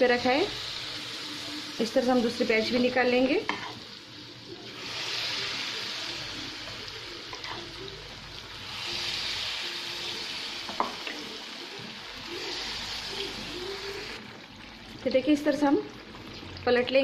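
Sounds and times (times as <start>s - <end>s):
batter sizzling in hot oil: 0.0s - 17.0s.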